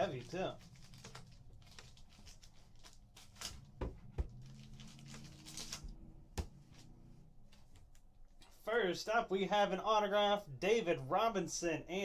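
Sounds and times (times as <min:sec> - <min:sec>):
card pack rustling and clicking: 0:00.1 - 0:05.9.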